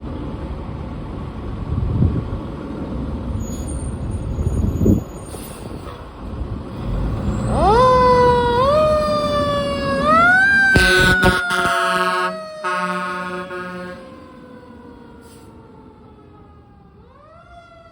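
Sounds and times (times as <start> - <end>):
truck and traffic rumble: 0.0 - 17.9
fire engine siren: 7.1 - 17.9.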